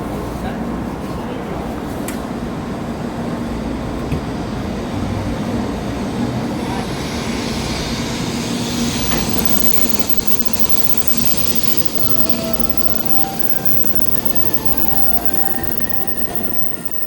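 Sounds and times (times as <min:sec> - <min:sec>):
high hiss: 0:08.5 - 0:17.0.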